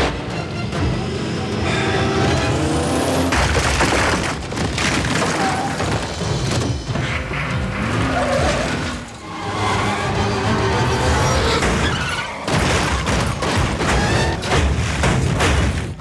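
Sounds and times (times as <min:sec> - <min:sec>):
car engines revving: 0:00.0 - 0:04.5, 0:05.5 - 0:13.9
crashes and impacts: 0:03.2 - 0:09.2, 0:11.4 - 0:16.0.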